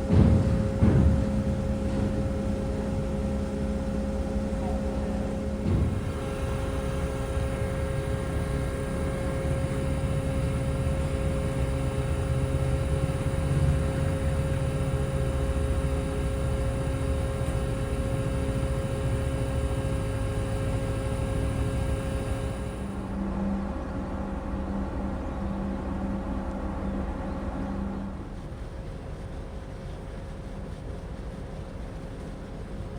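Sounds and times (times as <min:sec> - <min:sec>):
ferry engines humming: 0:00.0 - 0:29.0
short thump: 0:00.1 - 0:02.4.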